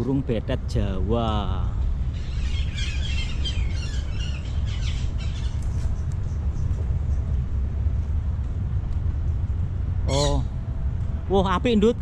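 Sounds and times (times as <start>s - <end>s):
steady low rumble: 0.0s - 12.0s
parakeets chattering: 2.1s - 6.7s, 10.1s - 10.5s.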